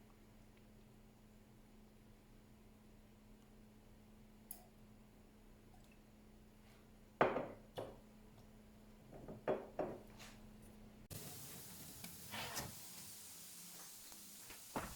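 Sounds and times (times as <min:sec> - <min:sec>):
household objects knocking: 0:07.2 - 0:08.0, 0:09.1 - 0:10.0.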